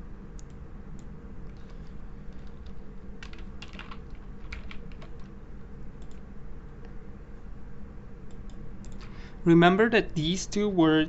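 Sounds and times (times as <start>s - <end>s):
low background hum: 0.0s - 11.0s
typing on a computer keyboard: 1.5s - 5.3s.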